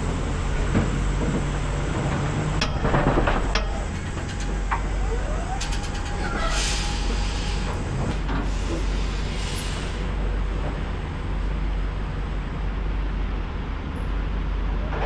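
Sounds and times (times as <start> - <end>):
diesel truck engine running: 0.0 - 13.8
air brake hiss: 5.4 - 10.1.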